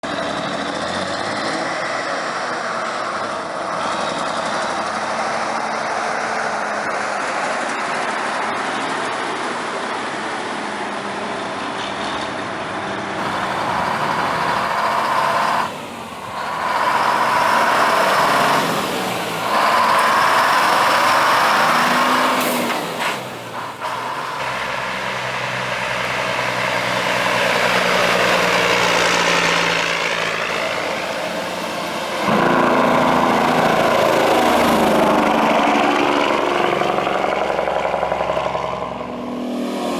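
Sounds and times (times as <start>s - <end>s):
heavy truck engines idling and revving: 0.0s - 39.9s.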